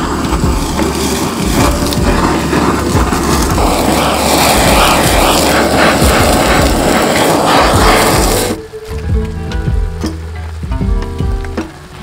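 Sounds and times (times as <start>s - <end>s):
food sizzling in hot oil: 0.0s - 8.6s.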